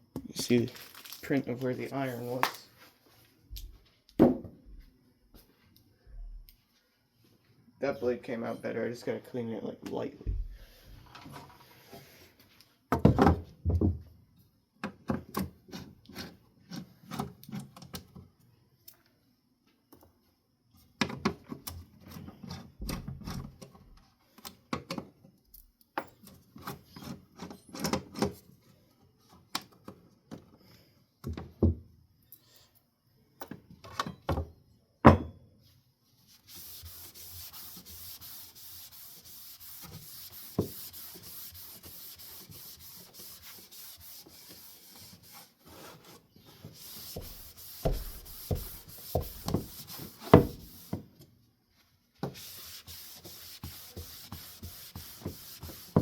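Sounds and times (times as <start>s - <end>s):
wipe scrubbing over blade: 36.3s - 46.0s, 46.7s - 51.0s, 52.3s - 56.0s.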